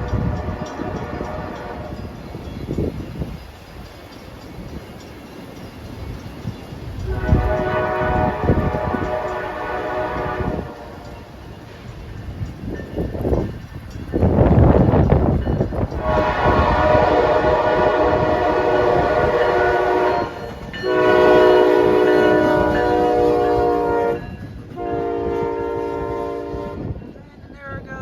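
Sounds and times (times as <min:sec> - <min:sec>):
locomotive air horn blasts: 0:00.0 - 0:02.2, 0:07.0 - 0:11.3, 0:15.9 - 0:26.9
loud train rumbling: 0:00.0 - 0:28.0.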